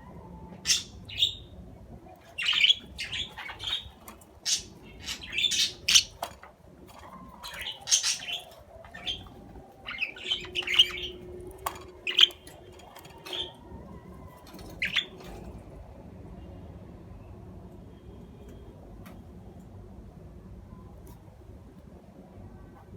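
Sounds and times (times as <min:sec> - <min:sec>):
budgerigars chirping: 0:02.3 - 0:06.3, 0:07.4 - 0:13.6, 0:14.6 - 0:15.2.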